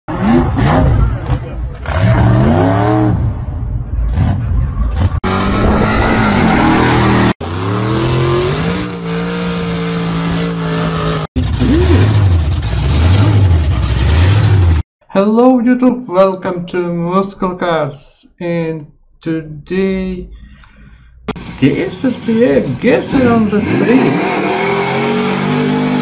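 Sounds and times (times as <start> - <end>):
drag car engine revving: 4.1 - 14.8, 21.3 - 26.0.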